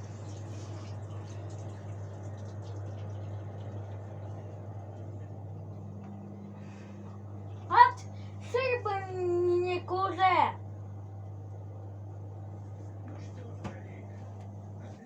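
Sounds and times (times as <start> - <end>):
washing machine humming: 0.0 - 15.0
higher hum: 3.4 - 15.0.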